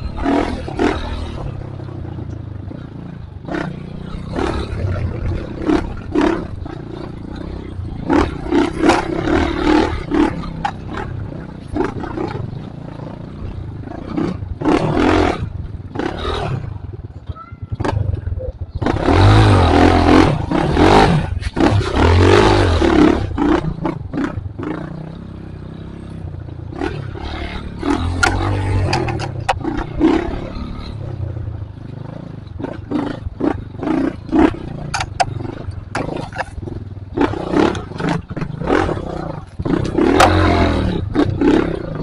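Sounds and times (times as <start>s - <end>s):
knocks and rattles over rough ground: 0.0s - 42.0s
motorcycle engine revving hard: 0.0s - 42.0s.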